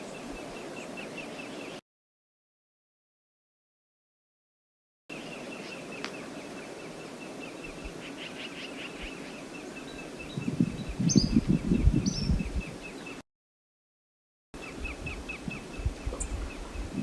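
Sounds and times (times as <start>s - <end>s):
falling bird calls: 5.1s - 13.2s.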